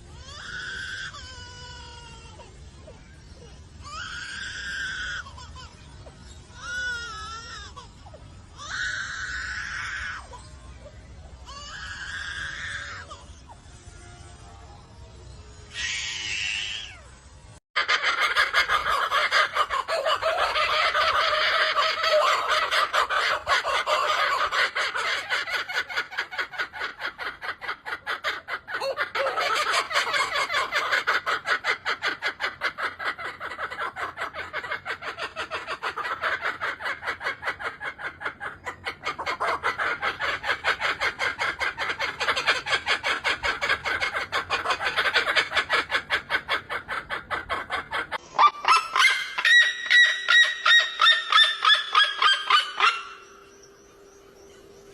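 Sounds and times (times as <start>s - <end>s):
bird rapid clucking chatter: 17.8s - 53.3s.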